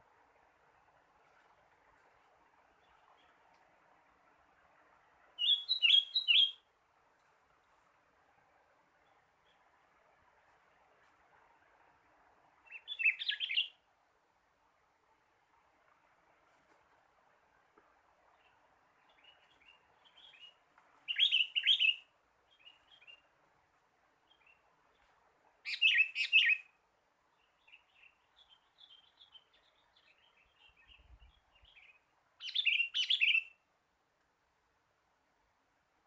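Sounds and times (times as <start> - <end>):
bird calling loud phrases: 5.4 - 6.6, 25.6 - 26.7, 32.4 - 33.6
soft bird chirps: 5.4 - 6.7, 12.6 - 13.8, 18.3 - 23.3, 24.2 - 33.6.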